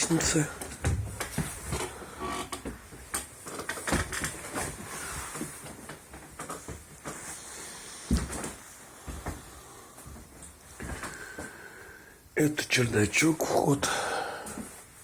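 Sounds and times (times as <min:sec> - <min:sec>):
footsteps on wooden stairs: 0:00.0 - 0:02.0, 0:08.1 - 0:11.5.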